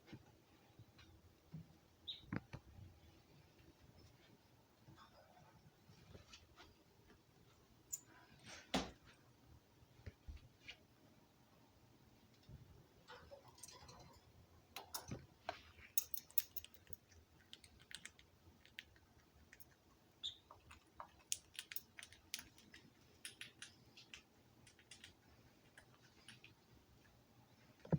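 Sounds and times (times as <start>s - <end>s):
bird peeping: 2.0s - 2.4s, 20.2s - 20.7s
caged birds clicking and tapping: 12.4s - 26.6s.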